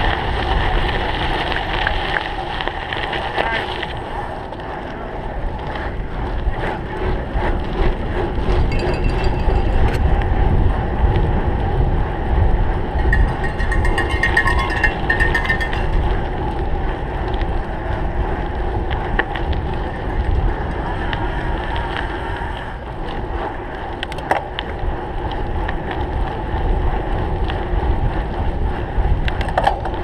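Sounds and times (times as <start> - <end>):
wind buffeting microphone: 0.0 - 30.0
bike frame and chain rattling: 5.5 - 11.4, 12.2 - 30.0
rapid ringing ticking: 8.5 - 10.2, 13.0 - 16.5.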